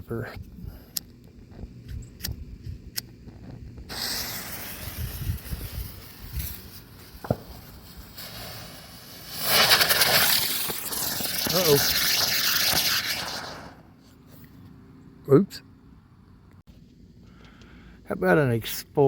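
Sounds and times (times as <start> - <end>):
firework light clicks: 0.9 - 3.9
firework hissing: 3.8 - 14.0.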